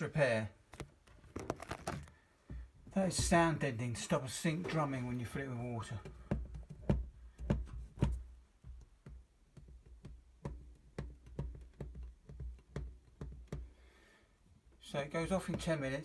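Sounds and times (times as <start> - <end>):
hands knocking and tapping on sink: 6.0 - 13.8.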